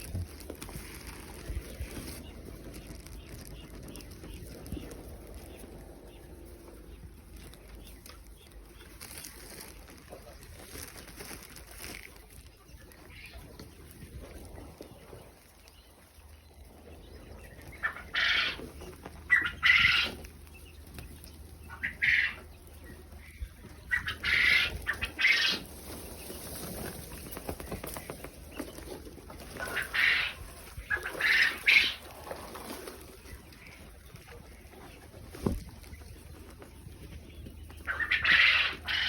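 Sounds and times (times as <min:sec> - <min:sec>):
low steady hum: 0:00.0 - 0:39.0
quail calling: 0:17.7 - 0:20.3, 0:21.7 - 0:22.5, 0:23.2 - 0:25.7, 0:29.4 - 0:32.7, 0:37.8 - 0:39.0.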